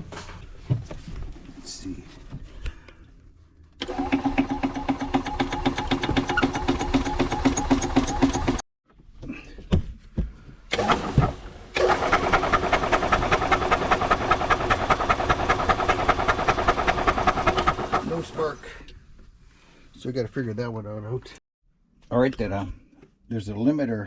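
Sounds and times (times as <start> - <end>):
engine cranking without starting: 3.8 - 8.6, 10.7 - 18.6.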